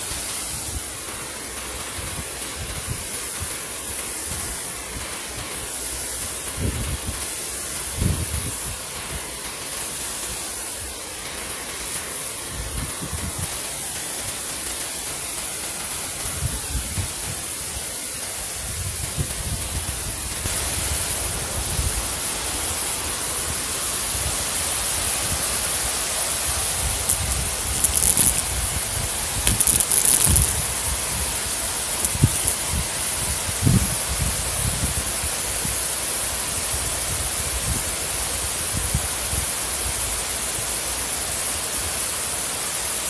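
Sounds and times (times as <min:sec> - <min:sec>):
flowing water rushing: 0:00.0 - 0:43.0
high-pitched hiss: 0:00.0 - 0:43.0
wind rumble on microphone: 0:06.4 - 0:07.2, 0:07.8 - 0:08.8, 0:12.5 - 0:13.6, 0:16.2 - 0:17.6, 0:18.6 - 0:22.4, 0:26.5 - 0:35.8, 0:36.6 - 0:40.0.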